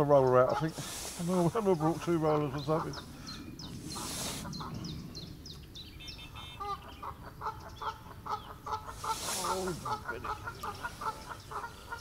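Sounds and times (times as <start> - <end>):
birds chirping: 0.0 - 12.0
short repeated bird calls: 1.8 - 5.0, 6.0 - 12.0.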